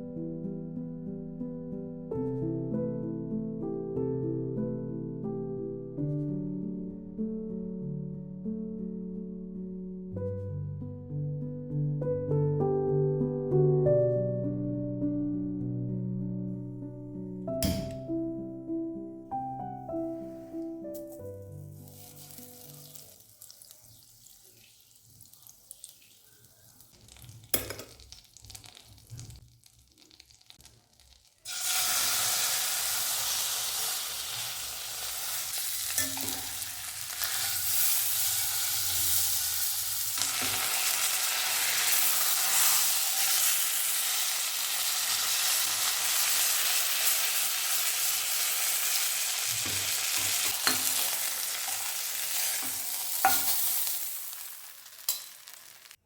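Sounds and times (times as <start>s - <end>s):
food sizzling in a pan: 21.0s - 56.0s.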